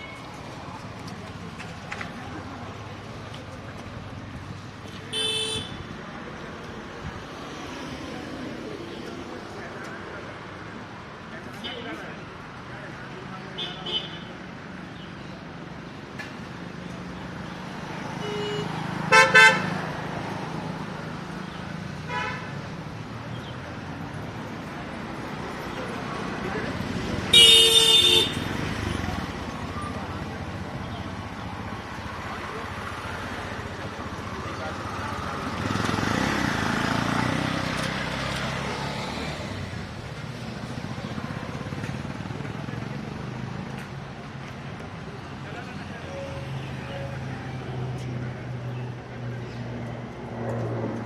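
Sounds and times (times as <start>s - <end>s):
road traffic noise: 0.0s - 51.0s
vehicle horn honking: 5.1s - 5.8s, 18.2s - 19.7s, 22.1s - 22.5s, 27.3s - 28.5s
vehicle engine passing: 32.3s - 43.7s.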